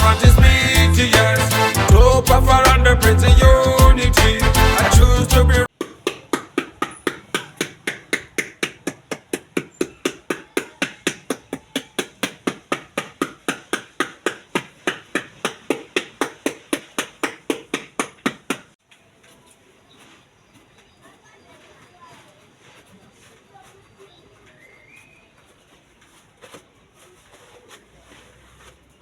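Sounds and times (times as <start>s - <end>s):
reggae music: 0.0s - 5.7s.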